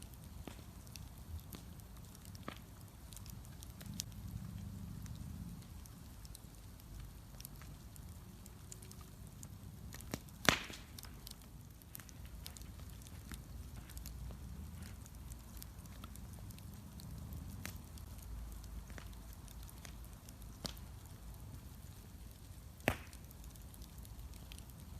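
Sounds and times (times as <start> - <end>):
bonfire crackling: 0.0 - 24.9
loud sharp pop: 10.4 - 10.9, 22.8 - 23.2.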